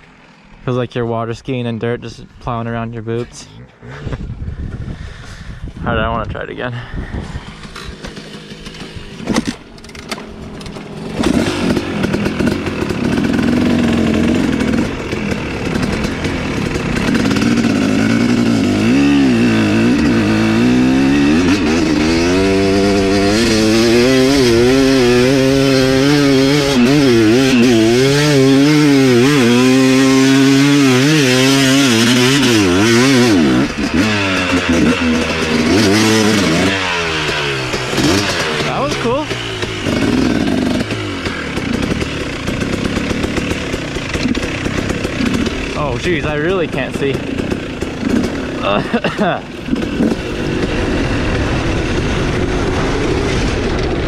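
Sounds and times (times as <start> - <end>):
dirt bike engine revving: 0.0 - 2.0, 6.1 - 54.0.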